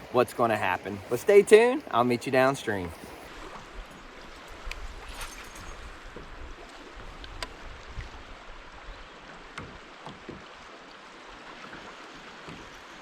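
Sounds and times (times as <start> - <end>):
creek water washing around kayak: 0.0 - 13.0.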